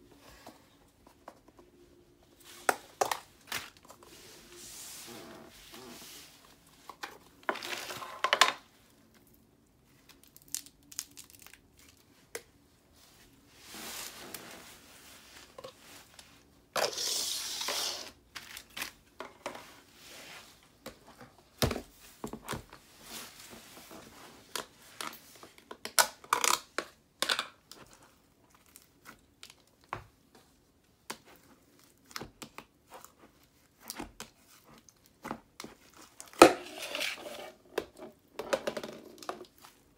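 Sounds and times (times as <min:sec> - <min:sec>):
sticky slime crackles: 0:10.0 - 0:12.2
plastic crinkling and tearing: 0:10.1 - 0:12.0.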